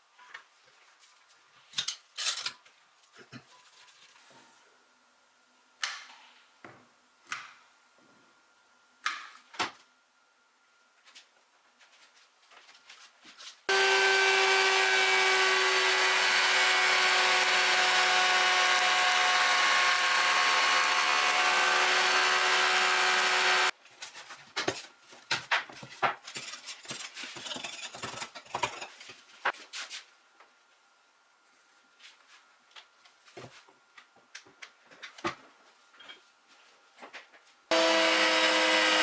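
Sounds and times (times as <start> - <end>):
woodworking power tool running: 13.7 - 23.8, 37.7 - 39.0.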